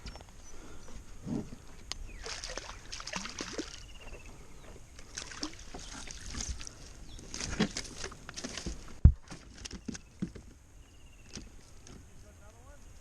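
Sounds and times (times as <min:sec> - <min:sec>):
water splashing and lapping: 0:02.1 - 0:04.2, 0:05.0 - 0:10.4.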